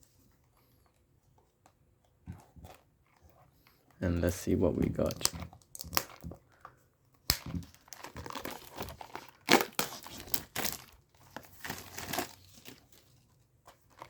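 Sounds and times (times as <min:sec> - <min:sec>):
packaging crinkling and tearing: 0:04.3 - 0:14.0.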